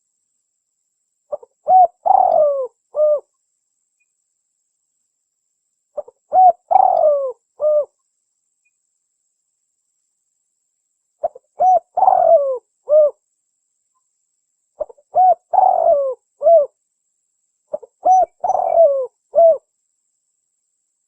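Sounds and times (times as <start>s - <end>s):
dove cooing: 1.3s - 3.3s, 6.0s - 8.0s, 11.2s - 13.2s, 14.8s - 16.8s, 17.7s - 19.7s.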